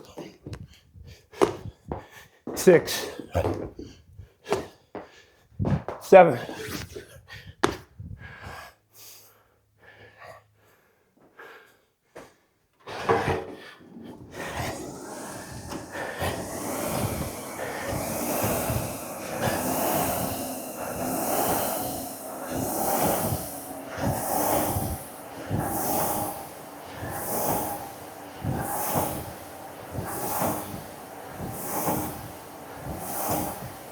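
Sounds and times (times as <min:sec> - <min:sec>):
heavy breathing: 0:13.6 - 0:33.9
flywheel whooshing: 0:13.8 - 0:33.9.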